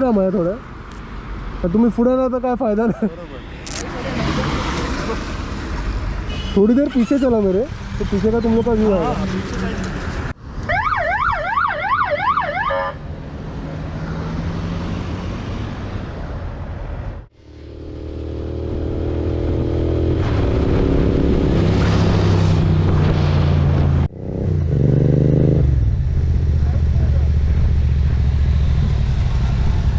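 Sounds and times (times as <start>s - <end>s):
traffic noise: 0.0s - 29.9s
emergency siren wailing: 10.7s - 13.0s.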